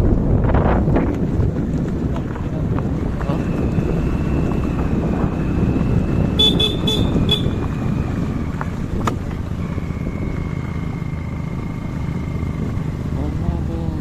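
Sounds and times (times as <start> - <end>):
motorcycle engine rumbling: 0.0 - 14.0
horn short toots: 6.3 - 7.6.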